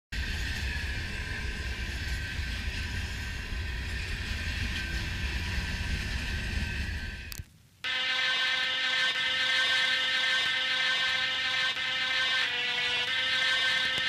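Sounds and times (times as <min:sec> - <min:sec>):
train wheels rumbling on rail: 0:00.1 - 0:07.5
high whine: 0:00.2 - 0:14.0.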